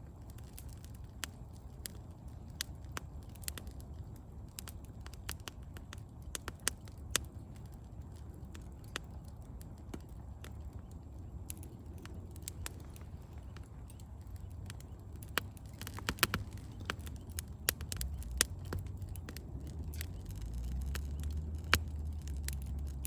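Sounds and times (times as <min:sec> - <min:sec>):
campfire crackling and popping: 0:00.0 - 0:23.0
low steady rumble: 0:00.0 - 0:23.0.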